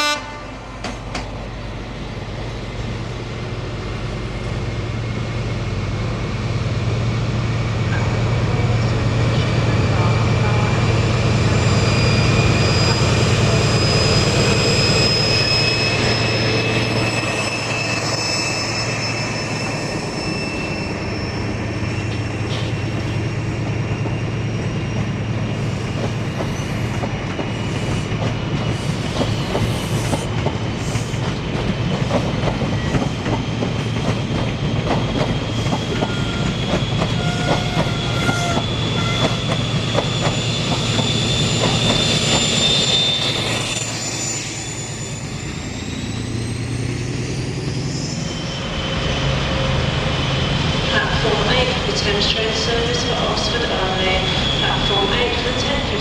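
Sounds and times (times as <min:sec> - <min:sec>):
train wheels clacking: 0:25.9 - 0:43.6.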